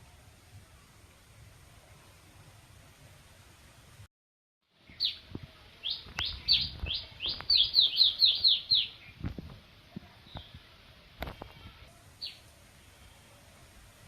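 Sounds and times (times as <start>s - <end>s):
bird chirping: 4.9s - 5.2s, 5.8s - 9.2s.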